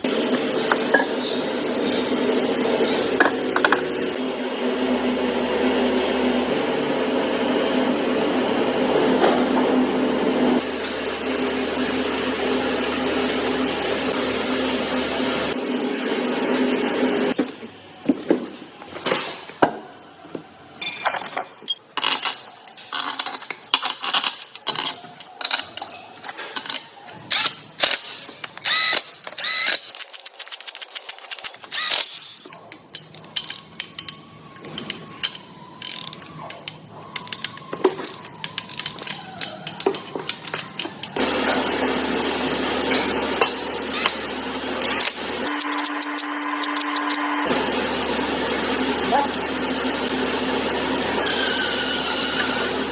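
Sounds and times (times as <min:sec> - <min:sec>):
metal tools clinking: 0:20.8 - 0:41.2, 0:44.8 - 0:47.5
ratchet wrench clicking: 0:27.3 - 0:41.2.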